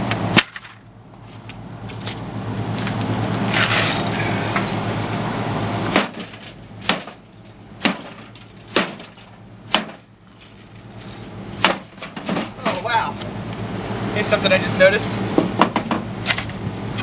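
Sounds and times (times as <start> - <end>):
steady noise with low hum: 0.0 - 17.0
small metallic clinks: 10.2 - 11.4.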